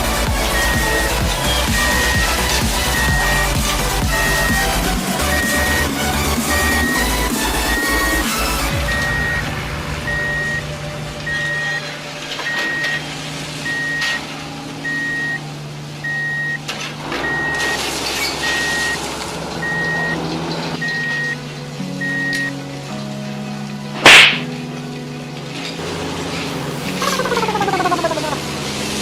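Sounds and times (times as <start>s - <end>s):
toy reversing beeper: 0.5s - 3.6s, 6.5s - 9.5s, 10.1s - 10.6s, 11.3s - 11.8s, 12.5s - 14.2s, 14.8s - 15.4s, 16.0s - 16.6s, 17.2s - 17.8s, 18.4s - 19.0s, 19.6s - 20.2s, 22.0s - 22.5s, 26.9s - 28.4s.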